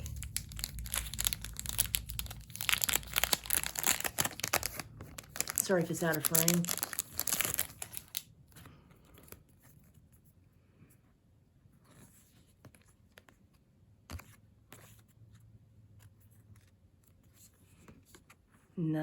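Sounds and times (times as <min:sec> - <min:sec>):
packaging rustling: 0:00.0 - 0:08.3.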